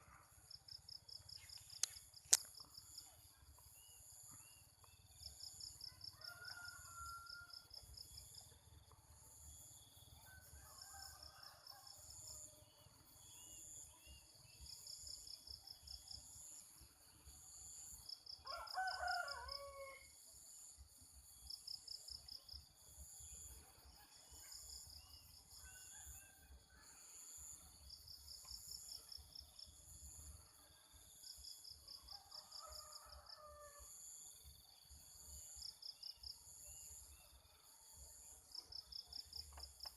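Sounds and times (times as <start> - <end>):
insects chirping: 0.1 - 39.9
rooster crowing: 6.0 - 7.7, 18.4 - 20.1, 32.1 - 34.0.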